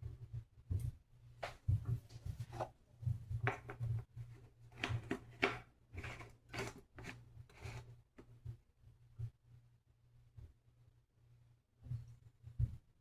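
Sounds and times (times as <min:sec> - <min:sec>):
rustling and scraping: 0:01.5 - 0:08.3.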